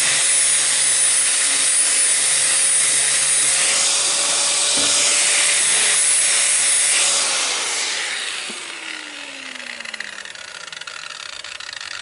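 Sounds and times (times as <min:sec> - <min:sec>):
saw grinding through steel: 0:00.0 - 0:12.0
saw motor whine: 0:00.0 - 0:12.0.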